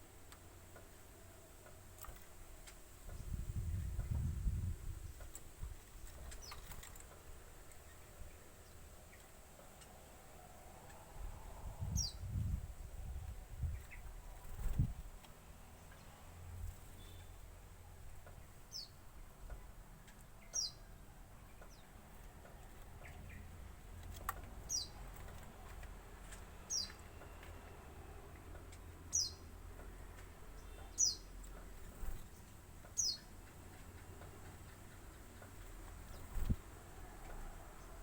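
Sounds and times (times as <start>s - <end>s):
bird high downward chirps: 33.0s - 33.3s.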